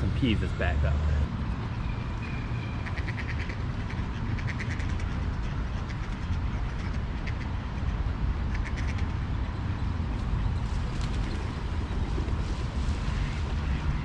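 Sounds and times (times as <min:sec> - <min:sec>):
wind rumble on microphone: 0:01.2 - 0:14.0
ducks quacking: 0:02.7 - 0:09.2.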